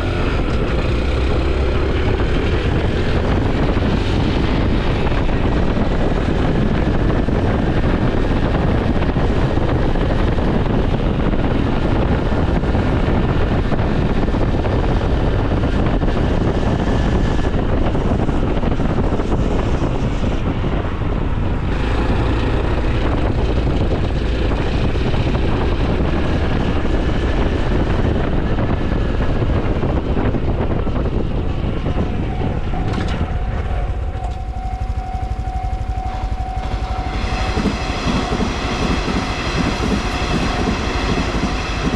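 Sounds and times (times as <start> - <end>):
motorcycle engine running: 0.0 - 41.9
wind rumble on microphone: 0.0 - 41.9
steady whine: 16.6 - 41.9.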